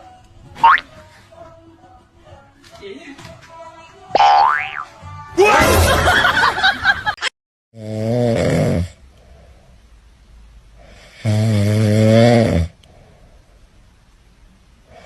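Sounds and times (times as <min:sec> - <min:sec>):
person snoring: 0:07.8 - 0:09.4, 0:10.8 - 0:12.8.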